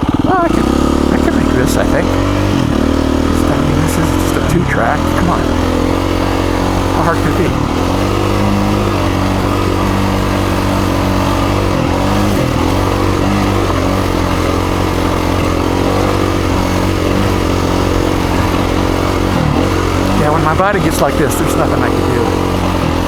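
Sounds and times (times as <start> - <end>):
dirt bike engine under throttle: 0.0 - 23.0.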